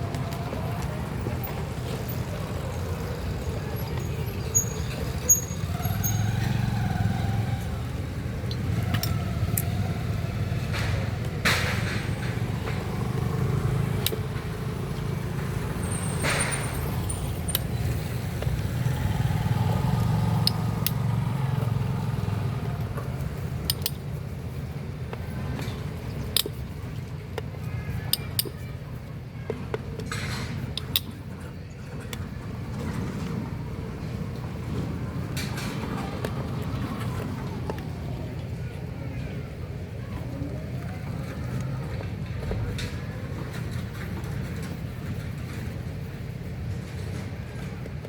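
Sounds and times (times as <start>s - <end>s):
vehicle engines rumbling: 0.0s - 48.0s
hand tools clinking on metal: 3.9s - 6.6s.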